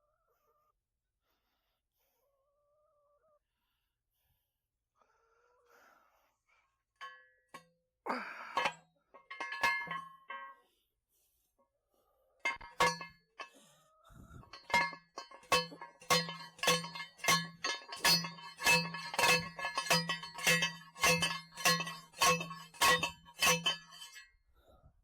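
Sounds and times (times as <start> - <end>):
metal post clanging under blows: 8.6 - 10.6, 12.5 - 13.2, 14.5 - 24.2.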